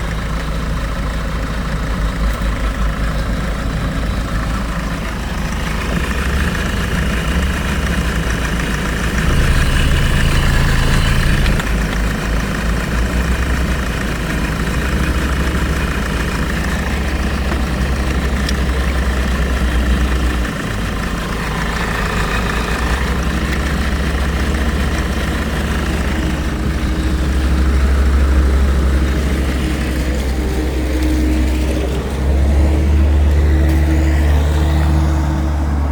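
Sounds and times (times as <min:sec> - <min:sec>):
diesel engine idling: 0:00.0 - 0:35.9.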